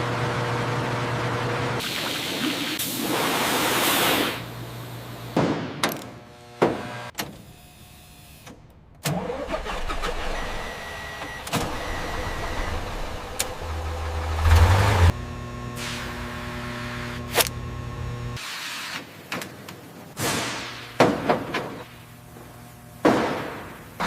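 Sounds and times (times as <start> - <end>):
hiss: 1.8 - 4.5
diesel engine starting and running: 8.9 - 18.3.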